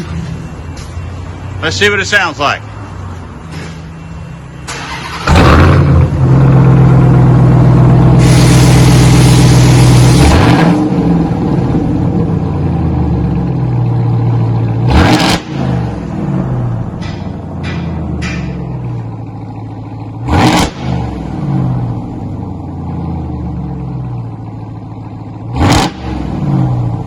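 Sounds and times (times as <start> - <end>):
truck engine revving: 4.7 - 24.2, 25.4 - 27.0.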